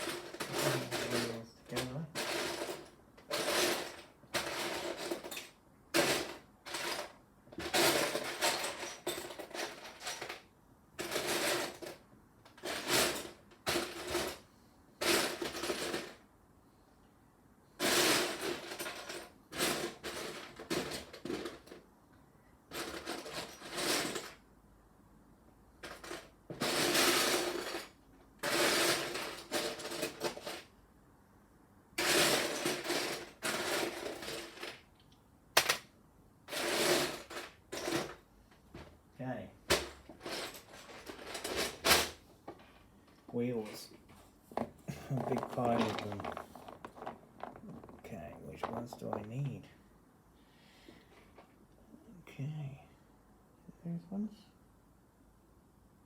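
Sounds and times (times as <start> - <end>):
plastic toy bricks clattering: 44.5 - 49.5.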